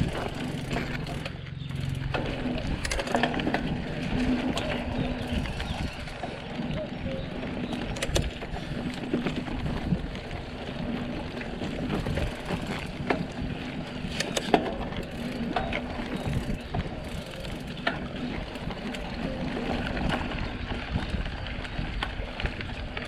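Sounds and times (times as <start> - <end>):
bicycle tyre and drivetrain noise: 0.0 - 23.0
sharp clicks and knocks: 7.7 - 8.4, 14.1 - 15.8.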